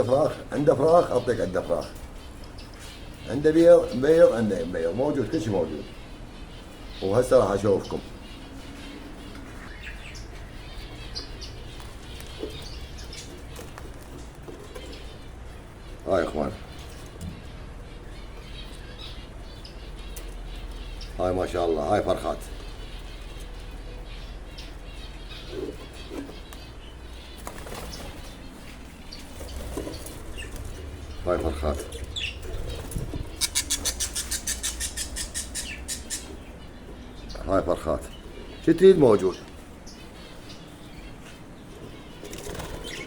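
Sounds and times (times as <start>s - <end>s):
small birds chirping: 0.0s - 43.0s
low steady hum: 5.8s - 42.4s
wings flapping: 27.3s - 28.4s, 29.2s - 35.6s, 42.3s - 43.0s.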